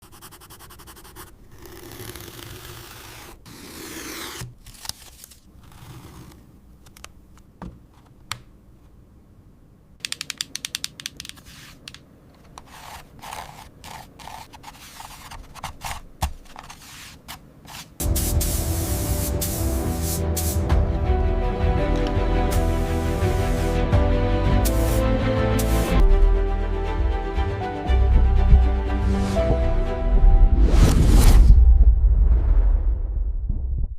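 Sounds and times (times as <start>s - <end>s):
cardboard being cut and scraped: 1.5s - 6.4s, 12.6s - 17.9s
sharp clicks: 10.0s - 11.4s
loud music: 18.0s - 31.1s.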